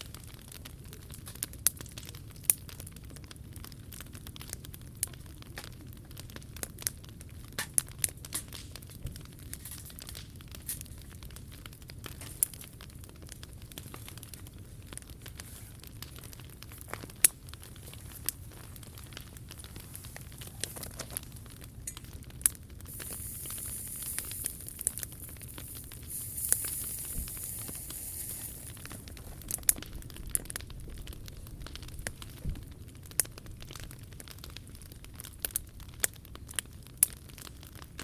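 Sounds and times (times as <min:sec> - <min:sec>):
wood fire crackling and popping: 0:00.0 - 0:38.0
high hiss: 0:22.9 - 0:29.6.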